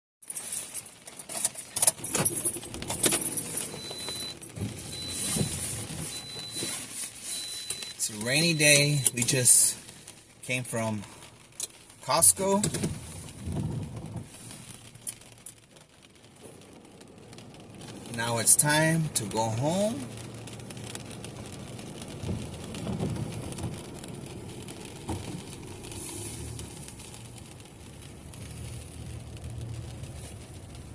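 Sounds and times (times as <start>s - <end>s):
rain on car body and windshield: 0.2s - 30.9s
low engine hum: 20.0s - 30.9s.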